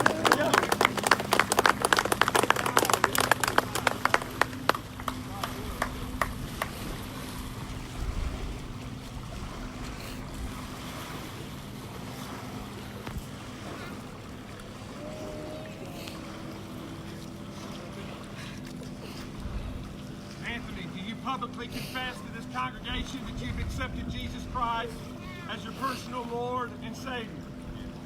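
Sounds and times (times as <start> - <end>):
sharp claps: 0.0 - 6.8
steady low hum: 0.0 - 28.0
wind blowing on microphone: 23.0 - 24.7.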